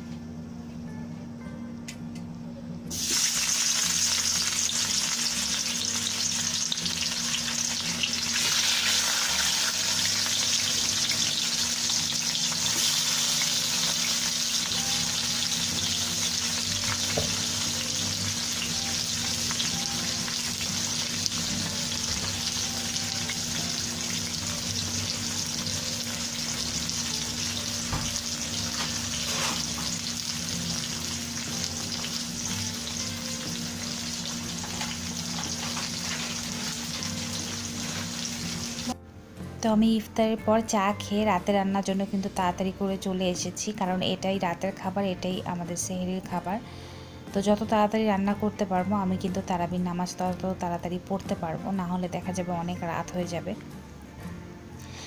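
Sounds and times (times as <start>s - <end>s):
food sizzling in hot oil: 2.9s - 39.0s.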